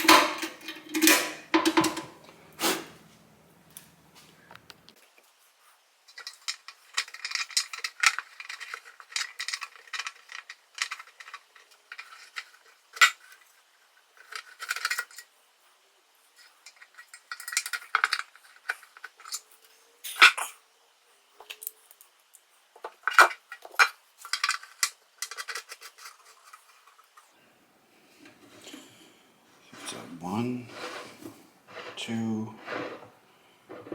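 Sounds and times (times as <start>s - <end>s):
metal parts and tools clinking: 0.0s - 2.2s, 6.1s - 13.4s.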